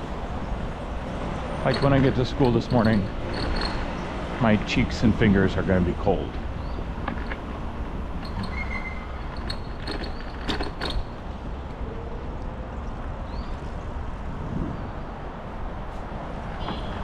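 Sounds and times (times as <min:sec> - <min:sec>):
bicycle rattles and knocks: 0:00.0 - 0:11.8
wind rushing over microphone: 0:13.1 - 0:17.0.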